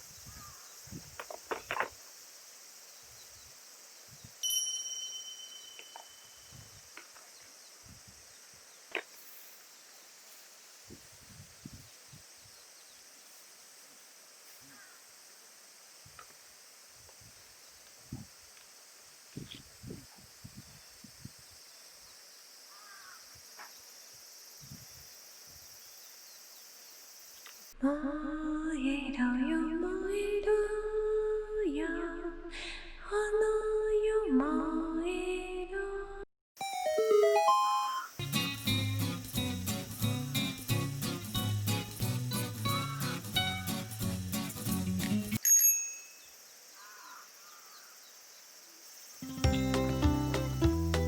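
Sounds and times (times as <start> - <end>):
steady high hiss: 0.0 - 27.8, 36.6 - 51.0
bell-like ding: 4.4 - 6.5, 45.4 - 46.3.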